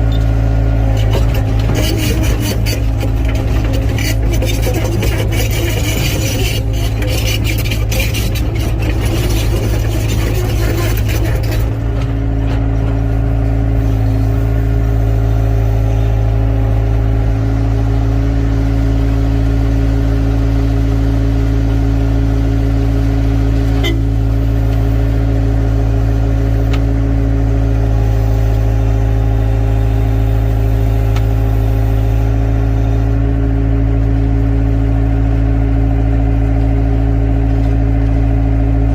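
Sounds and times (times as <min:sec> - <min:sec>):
excavator diesel engine running: 0:00.0 - 0:38.9
scraping and clattering: 0:00.9 - 0:13.0.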